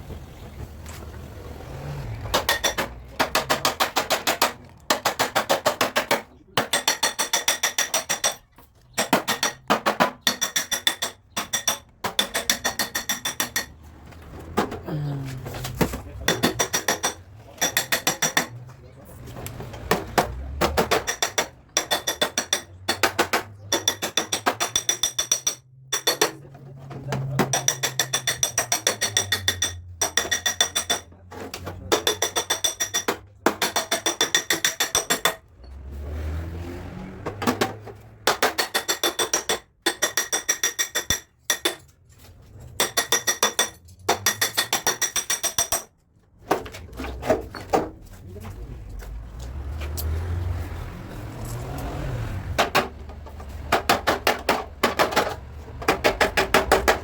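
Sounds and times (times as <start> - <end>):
hammer tapping on metal: 2.3 - 13.8, 16.2 - 18.6, 19.5 - 26.4, 27.2 - 31.1, 31.8 - 35.4, 37.4 - 41.9, 42.8 - 45.9, 53.7 - 57.0.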